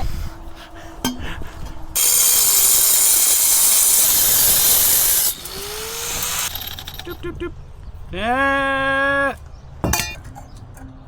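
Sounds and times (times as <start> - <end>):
motor whine: 2.0 - 7.1
power tool grinding metal pipe: 2.0 - 7.2.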